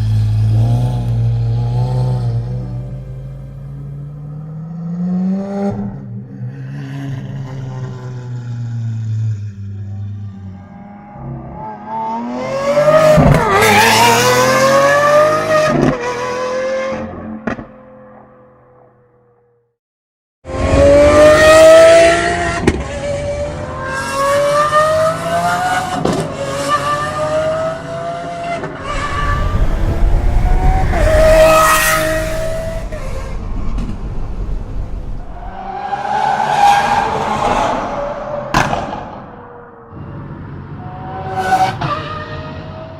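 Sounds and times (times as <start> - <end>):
car engine revving hard: 28.8 - 39.1.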